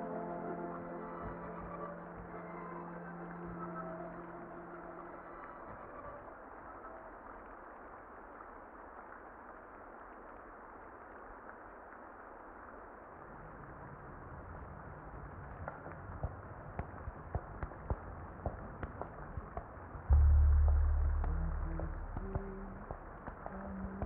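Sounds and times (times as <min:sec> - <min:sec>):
muffled rain hiss: 0:00.0 - 0:24.0
sharp crackles: 0:06.9 - 0:24.0
low rumble: 0:20.1 - 0:24.0.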